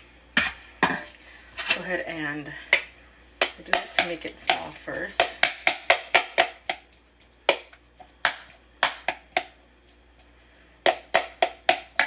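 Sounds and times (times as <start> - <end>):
utensil tapping against a bowl: 7.5 - 9.6.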